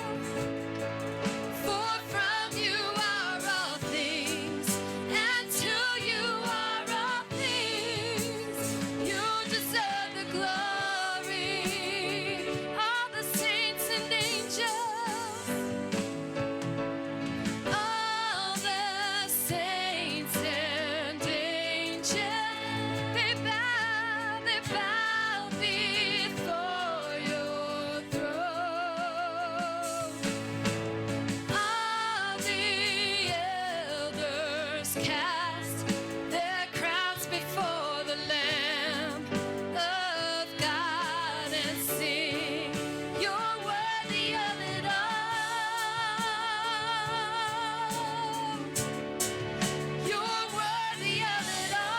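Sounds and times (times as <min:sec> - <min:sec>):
instrumental backing: 0:00.0 - 0:51.9
person singing with vibrato: 0:01.6 - 0:15.9, 0:31.5 - 0:51.9.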